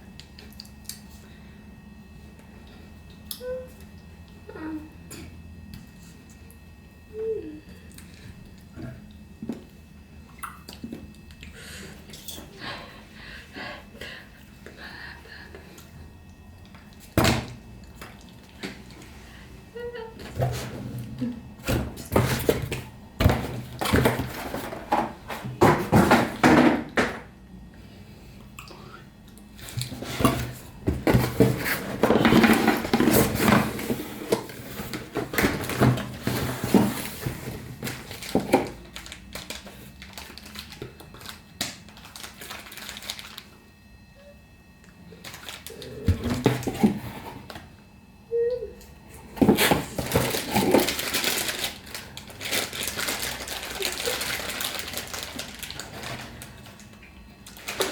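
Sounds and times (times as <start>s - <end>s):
hard objects clattering: 21.6s - 27.2s, 29.8s - 39.5s, 49.3s - 56.8s.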